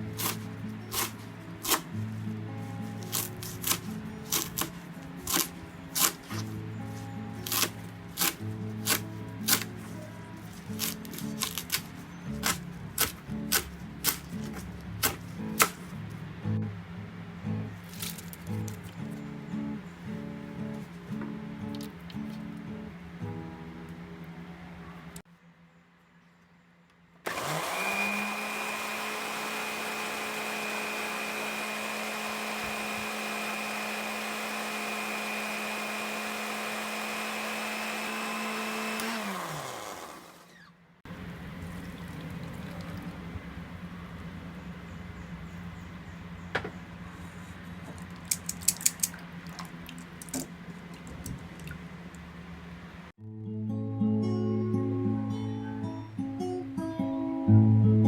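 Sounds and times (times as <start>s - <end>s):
blender motor spinning: 27.3s - 40.7s.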